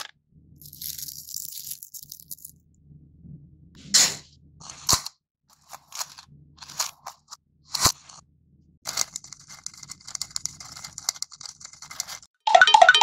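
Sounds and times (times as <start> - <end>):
crackers rustling in plastic: 0.6 - 2.5, 5.5 - 8.2, 8.9 - 12.3
crackers clicking against plastic: 8.9 - 12.3.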